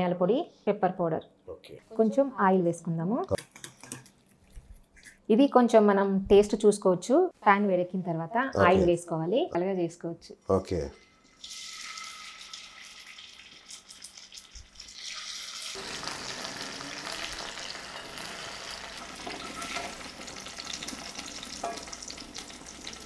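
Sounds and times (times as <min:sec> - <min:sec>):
clicks and scrapes in pan: 0:03.4 - 0:04.2
chicken sizzling in hot oil: 0:11.3 - 0:23.0.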